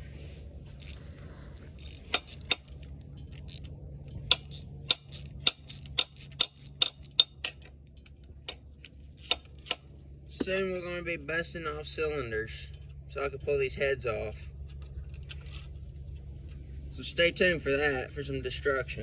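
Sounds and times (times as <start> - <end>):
low hum: 0.0 - 19.0
ratchet wrench clicking: 1.8 - 2.9, 4.3 - 7.7, 8.5 - 9.9.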